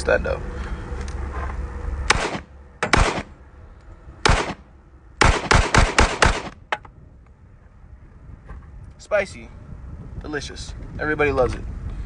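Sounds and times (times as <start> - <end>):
pistol shots: 2.1 - 3.4, 4.2 - 6.6.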